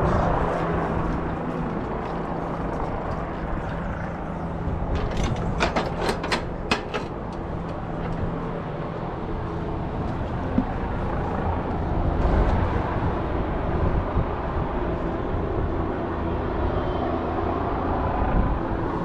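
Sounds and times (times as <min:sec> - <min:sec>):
low engine rumble: 0:00.0 - 0:14.6
sharp clicks or knocks: 0:04.9 - 0:08.3.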